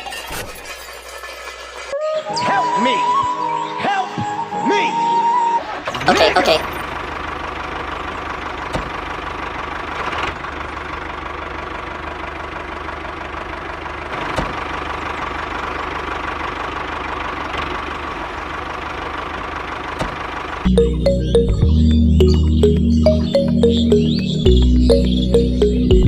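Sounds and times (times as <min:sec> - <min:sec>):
engine idling: 0:05.7 - 0:26.0.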